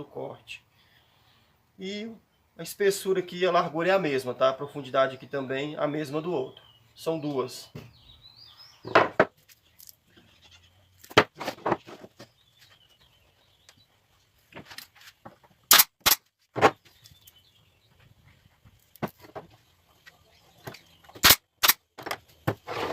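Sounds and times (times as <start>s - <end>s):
wooden boards knocking: 8.9s - 9.4s, 11.1s - 12.3s, 16.5s - 16.9s.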